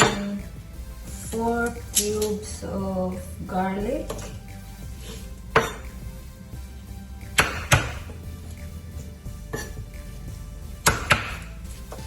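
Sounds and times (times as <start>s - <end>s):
soft background music: 0.0s - 12.0s
sharp kitchen knocks: 7.4s - 8.2s, 10.9s - 11.4s.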